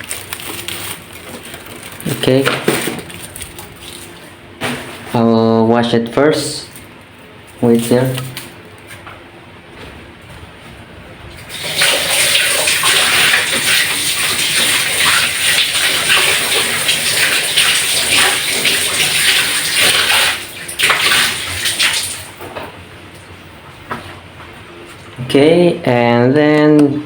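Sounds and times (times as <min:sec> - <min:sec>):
tap water splashing: 0:11.5 - 0:22.7.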